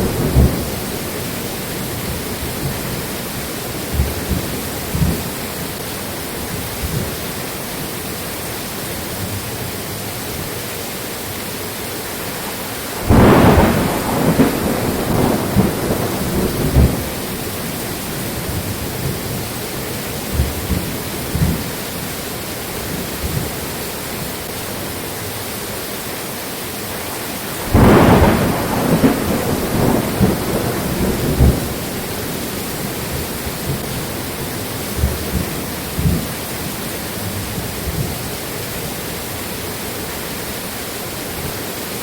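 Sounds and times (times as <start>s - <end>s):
thunder rumbling: 0.0s - 5.8s, 12.9s - 22.2s, 27.4s - 39.3s
rain falling: 0.0s - 42.0s.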